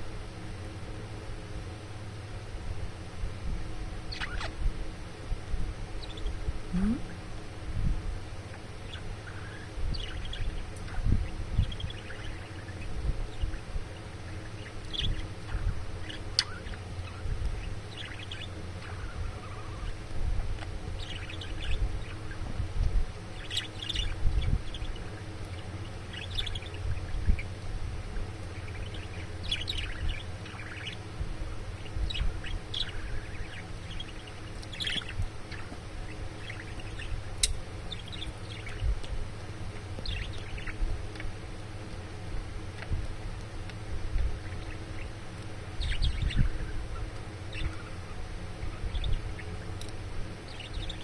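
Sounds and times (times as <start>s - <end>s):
low rumble: 2.5s - 43.2s
budgerigar chirping: 4.1s - 4.6s, 6.0s - 6.4s, 8.5s - 20.0s, 20.9s - 22.4s, 23.2s - 27.6s, 28.3s - 38.9s, 39.9s - 40.8s, 44.4s - 49.7s, 50.4s - 51.0s.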